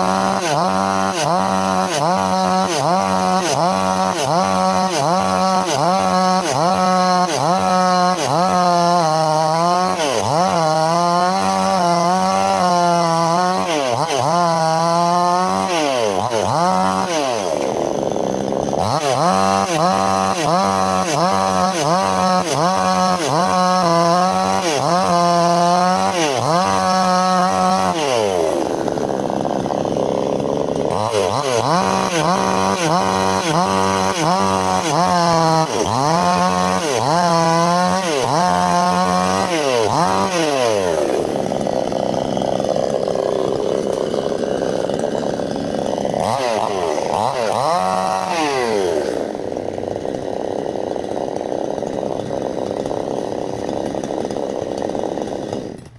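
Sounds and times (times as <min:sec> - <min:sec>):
chainsaw cutting wood: 0:00.0 - 0:55.9.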